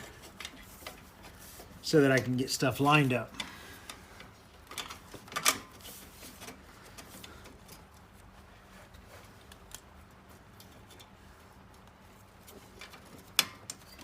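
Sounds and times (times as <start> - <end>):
sharp metal clicks and knocks: 12.7 - 14.0.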